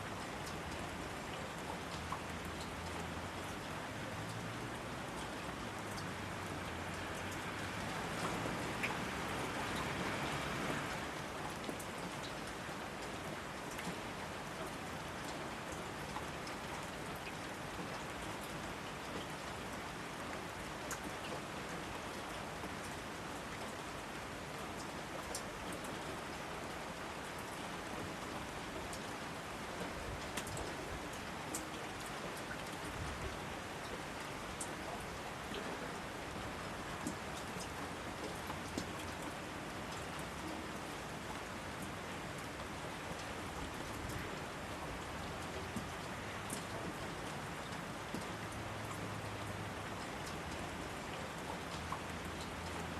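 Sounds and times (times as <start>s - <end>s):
rain falling through forest: 0.0s - 52.9s.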